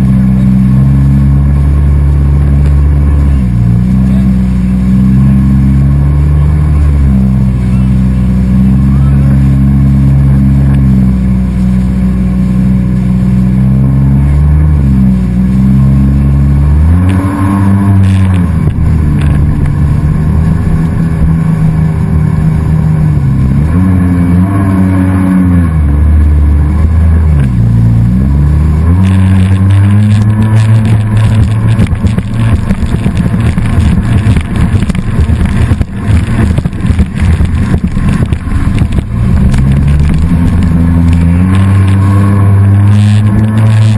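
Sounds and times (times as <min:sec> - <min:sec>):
engine revving: 0:00.0 - 0:43.9
rough choppy rushing noise: 0:14.2 - 0:43.9.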